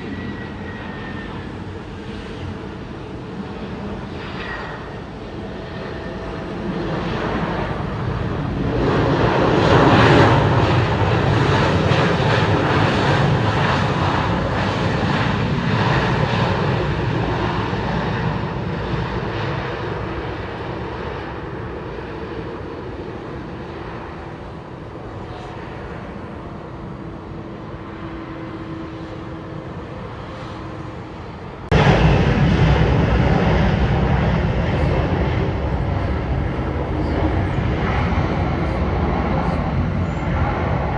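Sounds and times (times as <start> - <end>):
jet engine passing: 0.0 - 40.9
loud jet engine noise: 0.0 - 40.9.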